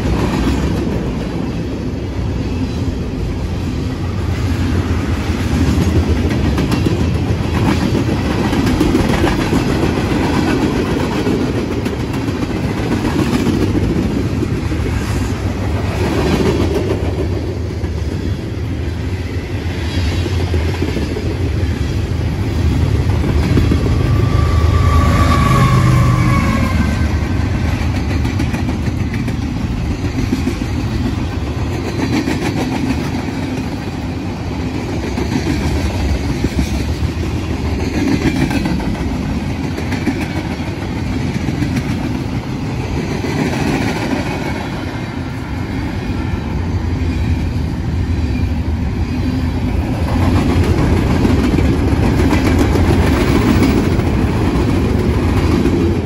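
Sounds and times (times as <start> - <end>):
diesel locomotive rumble: 0.0 - 56.0
freight train wheels rumbling: 0.0 - 56.0
wheels clickety-clack: 5.2 - 18.0, 27.1 - 45.2, 49.6 - 56.0
brief high squeal: 23.9 - 27.0.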